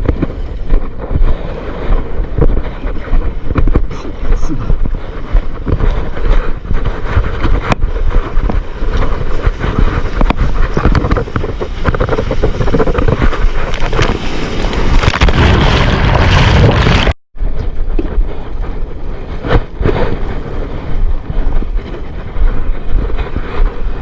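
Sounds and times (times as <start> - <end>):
wind buffeting microphone: 0.0 - 24.0
sea surf splashing: 0.2 - 17.2.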